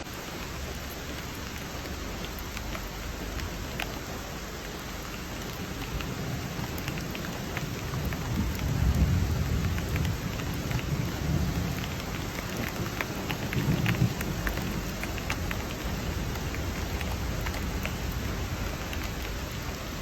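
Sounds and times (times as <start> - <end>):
raindrops ticking: 0.0 - 20.0
steady rain falling: 0.0 - 20.0
low rumble of thunder: 5.0 - 20.0.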